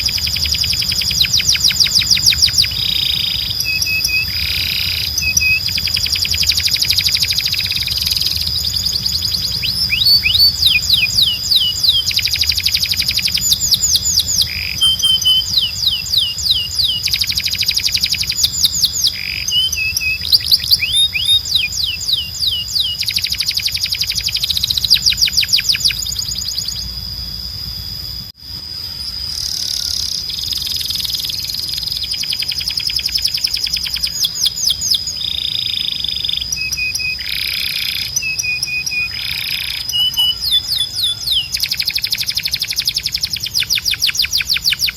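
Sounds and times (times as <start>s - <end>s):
canary singing trills: 0.0s - 44.9s
low hum: 0.0s - 44.9s
steady high tone: 0.0s - 44.9s.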